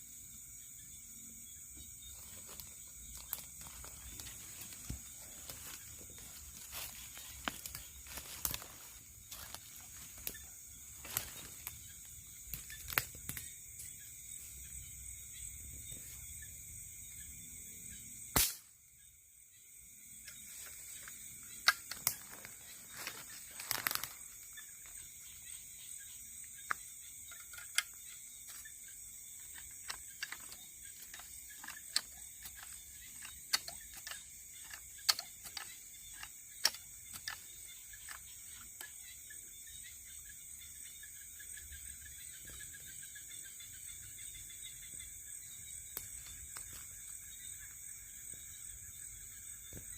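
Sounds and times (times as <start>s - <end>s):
crickets and insects chirring: 0.0s - 49.9s
sharp click: 18.4s - 18.7s.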